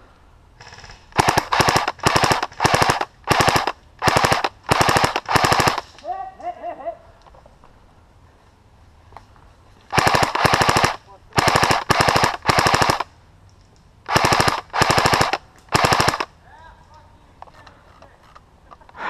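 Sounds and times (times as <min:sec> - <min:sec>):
airsoft rifle firing bursts: 0:00.6 - 0:05.9, 0:09.9 - 0:13.1, 0:14.1 - 0:16.3.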